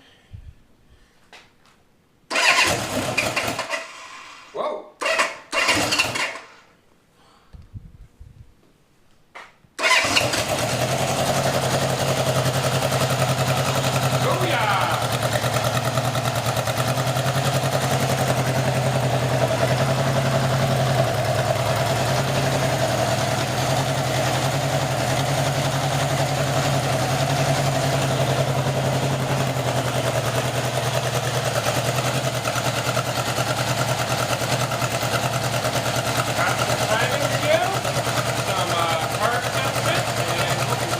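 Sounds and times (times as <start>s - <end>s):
motorcycle engine idling: 9.8s - 40.9s.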